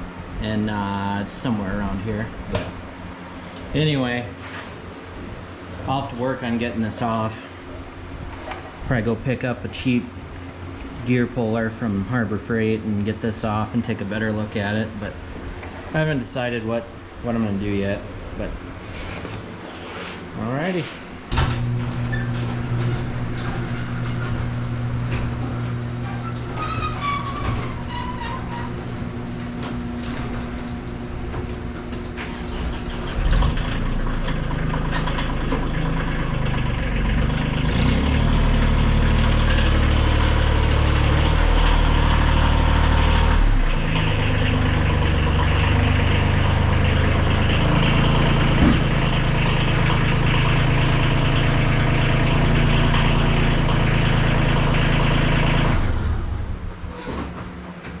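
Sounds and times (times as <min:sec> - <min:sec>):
small engine running: 0:32.2 - 0:56.4.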